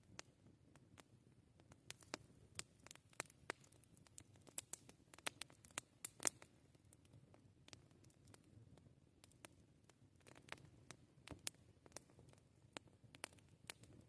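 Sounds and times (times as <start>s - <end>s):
campfire pops and snaps: 0.0s - 8.5s, 9.2s - 14.0s
low soft fire rumble: 0.0s - 14.0s.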